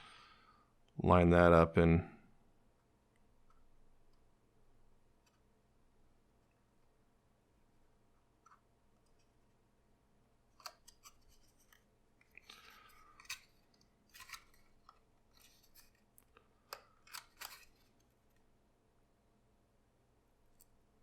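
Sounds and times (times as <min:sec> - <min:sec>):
card stock rustling and folding: 0:10.5 - 0:16.2, 0:16.8 - 0:18.2.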